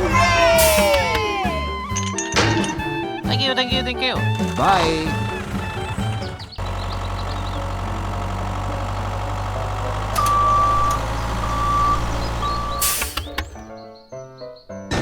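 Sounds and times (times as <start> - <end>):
vehicle engine running: 2.8 - 13.7
reversing alarm beeping: 10.2 - 13.6.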